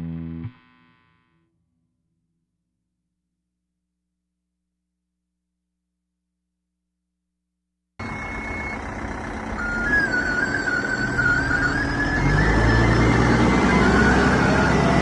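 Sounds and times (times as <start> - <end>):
diesel engine running: 8.0 - 15.0
high wavering whine: 8.0 - 15.0.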